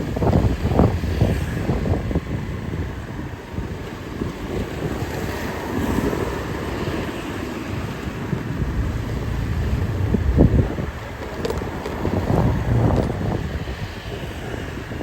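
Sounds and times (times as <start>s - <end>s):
passing vehicles rumble: 0.0s - 15.0s
wind buffeting microphone: 0.0s - 15.0s.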